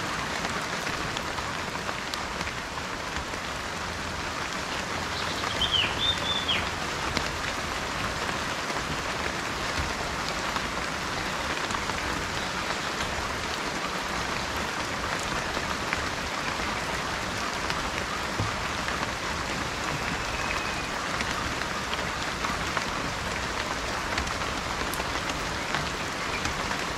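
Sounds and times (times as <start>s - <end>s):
steady rain falling: 0.0s - 26.9s
raindrops ticking: 0.1s - 26.9s
bird call: 5.2s - 6.7s, 19.8s - 21.0s.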